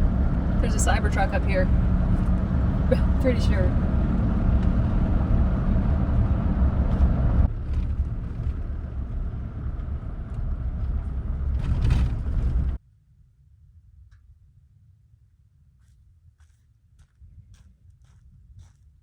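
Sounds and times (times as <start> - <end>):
truck engine and road rumble: 0.0 - 12.8.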